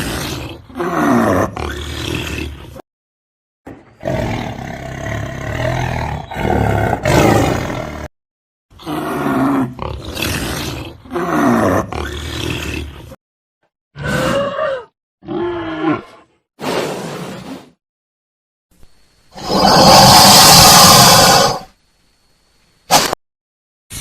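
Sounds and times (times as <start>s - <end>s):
big cat roaring and growling: 0.0s - 2.8s, 3.9s - 8.1s, 8.8s - 13.2s, 14.0s - 17.0s, 19.3s - 21.7s.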